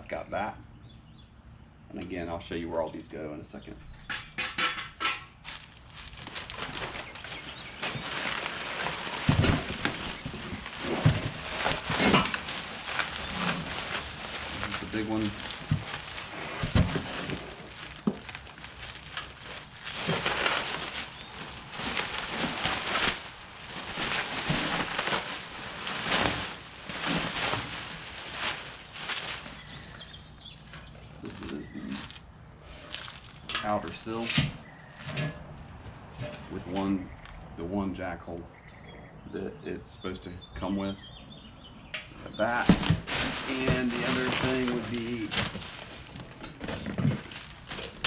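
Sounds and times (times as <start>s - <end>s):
packaging rustling and crinkling: 5.4s - 34.3s, 42.4s - 48.0s.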